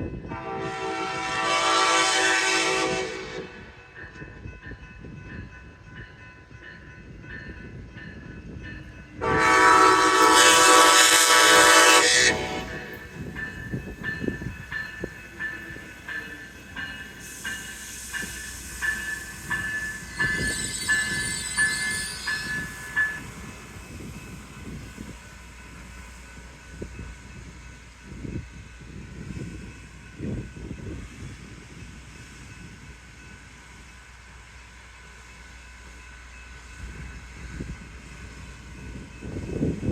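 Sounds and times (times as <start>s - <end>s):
train horn blast: 0.2s - 3.7s, 9.2s - 12.9s
train wheels clicking on rails: 3.5s - 39.9s.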